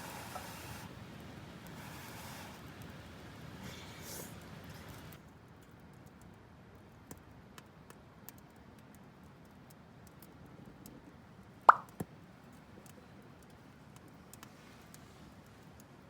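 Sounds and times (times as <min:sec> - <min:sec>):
firewood crackling: 0:00.0 - 0:05.2
loud fire pop: 0:11.7 - 0:11.9.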